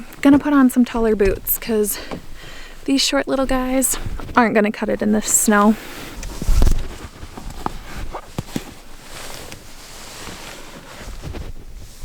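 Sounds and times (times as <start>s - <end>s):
light knocks and rustles: 5.2s - 12.0s.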